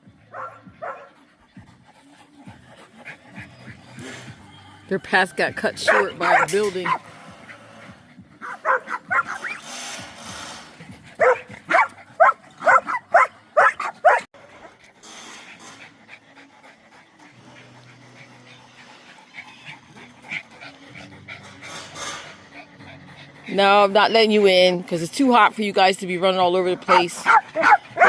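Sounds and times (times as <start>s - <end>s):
dogs barking: 0.0s - 14.8s, 26.7s - 28.0s.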